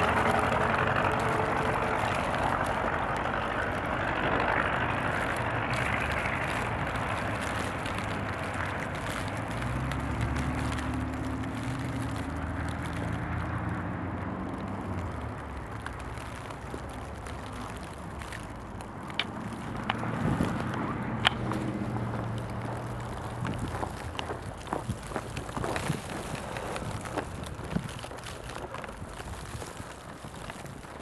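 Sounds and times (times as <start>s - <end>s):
heavy vehicle engine running: 0.0s - 29.6s
traffic: 0.0s - 31.0s
wind noise: 14.7s - 31.0s.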